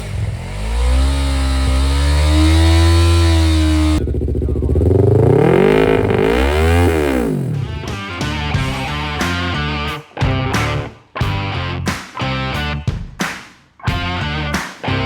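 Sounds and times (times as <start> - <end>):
motorcycle engine revving: 0.0 - 9.3
rising tone: 0.4 - 9.2.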